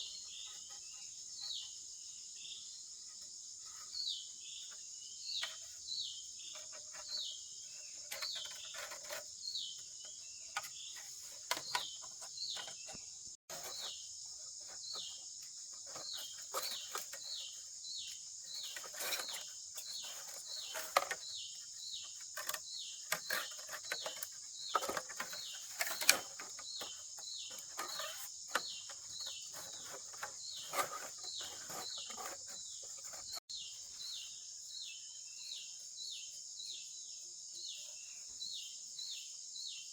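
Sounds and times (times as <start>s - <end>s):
bird chirping: 0.0s - 39.9s
insects droning: 0.0s - 39.9s
clicks and knocks of handwork: 18.6s - 33.4s.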